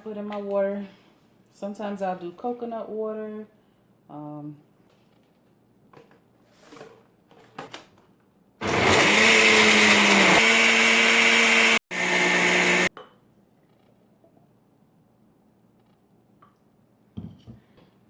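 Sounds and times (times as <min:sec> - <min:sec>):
blender motor running: 0:08.6 - 0:12.9.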